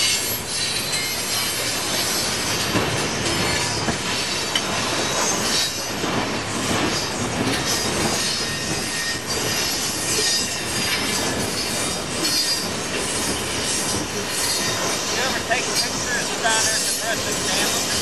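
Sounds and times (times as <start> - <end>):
train wheels rolling on rails: 0.0 - 18.0
high wheel screeching: 6.8 - 18.0.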